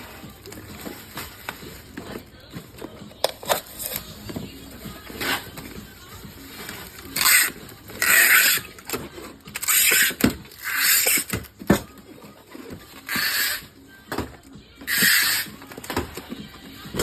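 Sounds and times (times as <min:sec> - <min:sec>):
tearing or rasping bursts: 0:07.0 - 0:11.5, 0:13.0 - 0:13.7, 0:14.9 - 0:15.7.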